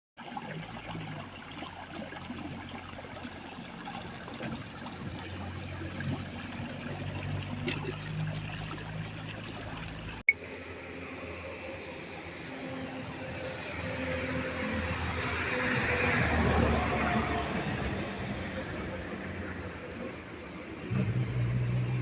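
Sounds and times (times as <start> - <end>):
water trickling: 0.2 - 10.3.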